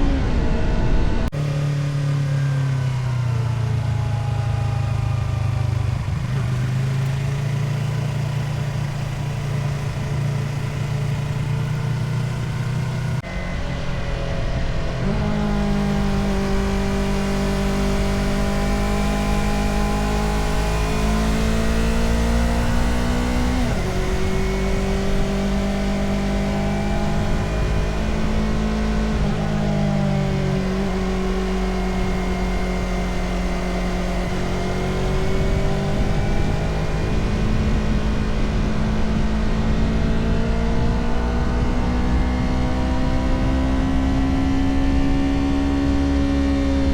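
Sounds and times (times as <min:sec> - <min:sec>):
motorcycle engine running: 0:00.0 - 0:46.9
wind noise: 0:13.2 - 0:46.9.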